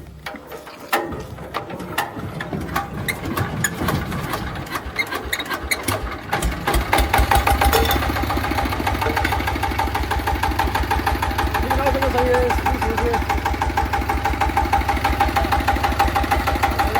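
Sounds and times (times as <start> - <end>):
engine chugging: 0.0 - 16.9
hand crank clattering and clicking: 7.2 - 8.2.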